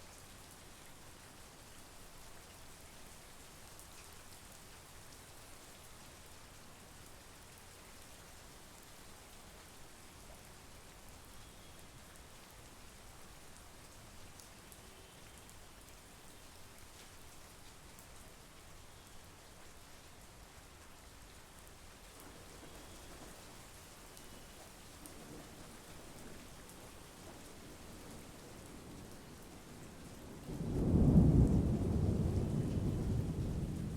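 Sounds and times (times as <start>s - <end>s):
steady rain hiss: 0.0s - 33.9s.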